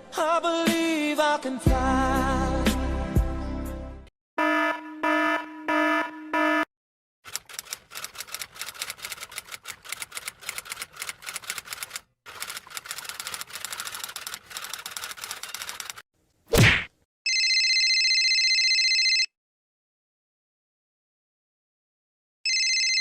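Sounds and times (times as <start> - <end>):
fast typing on keyboard: 7.3 - 16.0.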